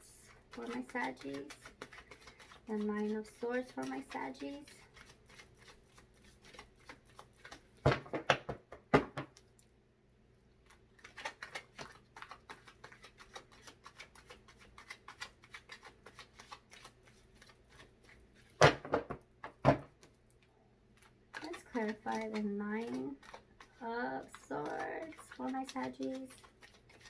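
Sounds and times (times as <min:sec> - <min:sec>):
deck of cards slapping: 0:07.4 - 0:09.4, 0:14.2 - 0:19.9.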